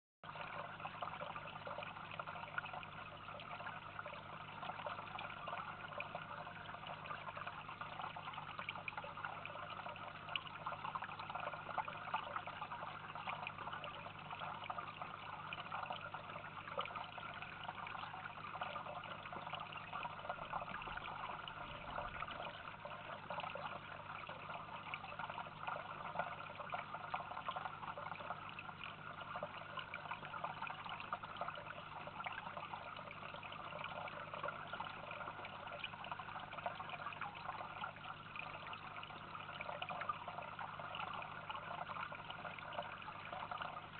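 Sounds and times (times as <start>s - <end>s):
water trickling: 0.2s - 43.9s
faint low hum: 0.3s - 43.9s.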